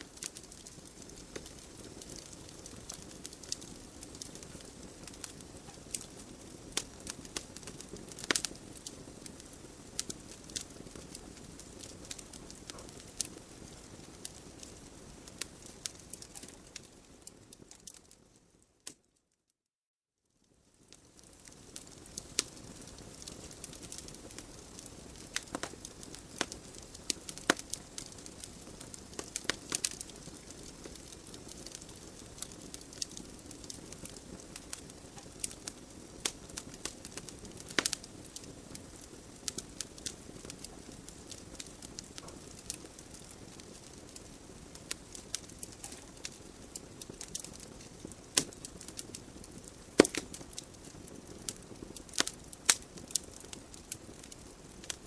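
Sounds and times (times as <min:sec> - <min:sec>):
logs crackling and popping: 0:00.0 - 0:19.1, 0:20.7 - 0:55.0
flames hissing: 0:21.2 - 0:55.0.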